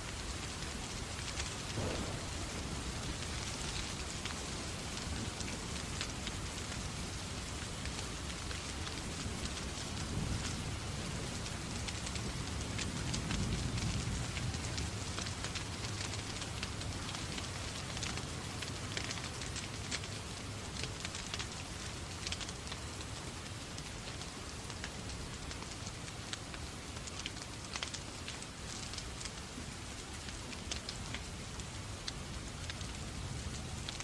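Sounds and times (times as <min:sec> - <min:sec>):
fireplace fire crackling: 0:00.0 - 0:34.0
rain falling on a surface: 0:00.0 - 0:34.0
low rumble: 0:01.7 - 0:03.7.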